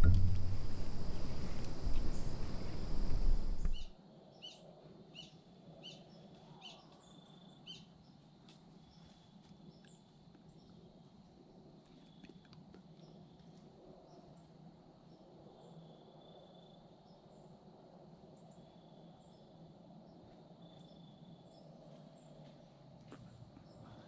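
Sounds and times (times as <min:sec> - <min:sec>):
bird chirping: 0:00.0 - 0:03.9.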